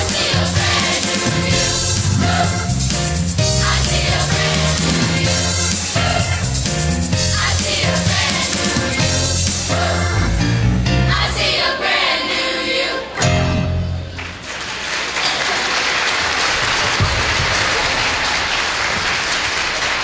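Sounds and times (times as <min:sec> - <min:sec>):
group singing with backing music: 0:00.0 - 0:13.9
audience applauding: 0:14.2 - 0:20.0.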